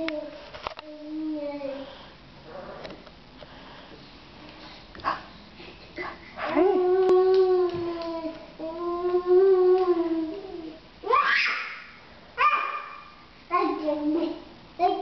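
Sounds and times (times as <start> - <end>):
dog howling and yelping: 6.4 - 8.0.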